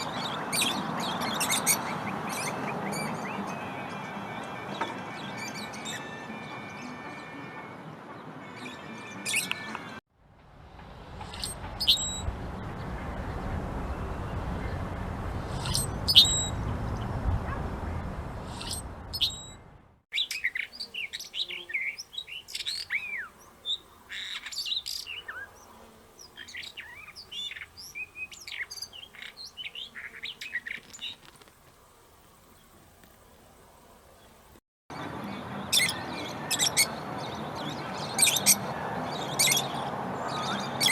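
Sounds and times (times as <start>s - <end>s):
chorus of bird calls and songs: 0.0s - 10.0s, 11.2s - 17.2s, 18.0s - 19.6s, 20.2s - 31.6s, 32.2s - 40.9s
steady rushing noise: 10.2s - 20.0s
high bird chirps: 15.5s - 17.1s, 18.4s - 19.6s, 20.2s - 23.3s.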